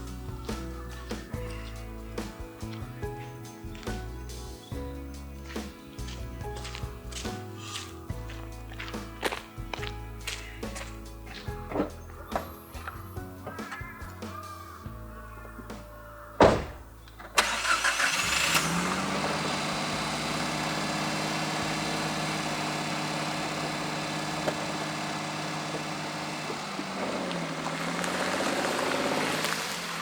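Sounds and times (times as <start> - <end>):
car engine starting and idling: 16.4 - 30.0.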